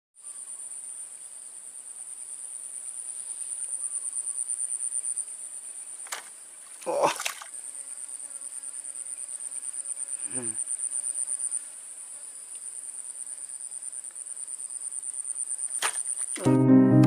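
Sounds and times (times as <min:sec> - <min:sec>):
music: 0:16.4 - 0:17.0.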